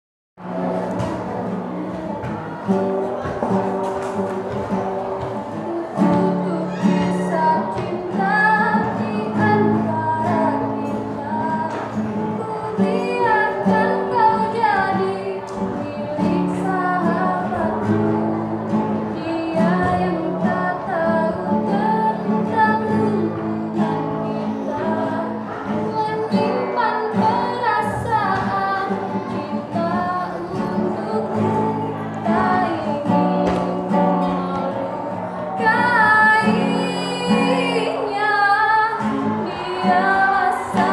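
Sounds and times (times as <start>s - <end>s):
guitar accompaniment: 0.4s - 40.9s
women singing: 0.5s - 40.9s.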